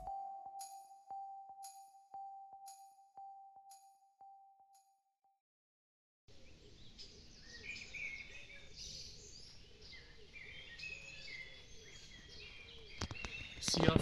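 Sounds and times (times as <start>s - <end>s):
faint outdoor background noise: 6.3s - 14.0s
small birds chirping: 6.3s - 14.0s.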